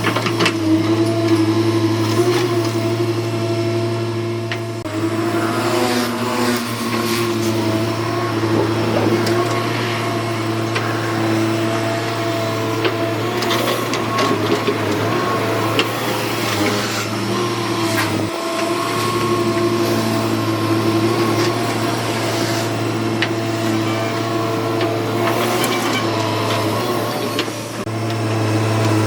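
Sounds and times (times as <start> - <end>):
excavator diesel engine and hydraulics: 0.0 - 29.0.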